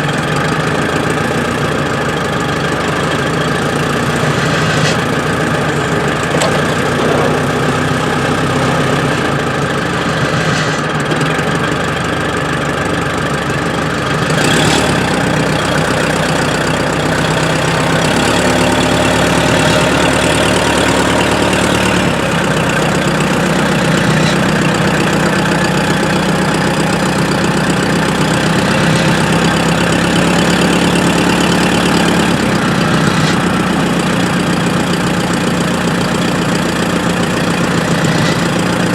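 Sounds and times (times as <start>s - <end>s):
engine running: 0.0s - 38.9s
dense noise: 1.2s - 14.2s.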